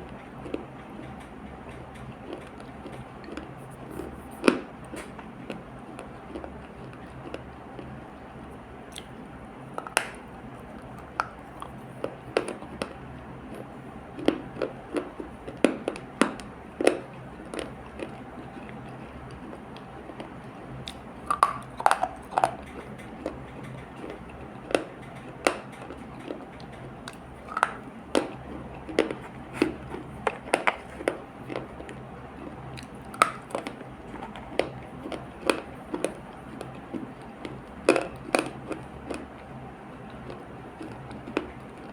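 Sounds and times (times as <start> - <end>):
chewing and crunching clay: 0.0 - 41.9.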